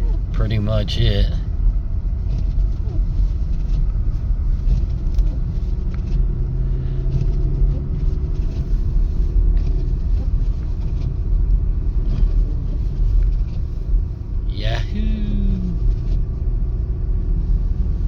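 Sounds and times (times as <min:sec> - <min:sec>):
car engine running: 0:00.0 - 0:18.0
tyre noise on snowy road: 0:00.0 - 0:18.0
low hum: 0:13.6 - 0:18.0.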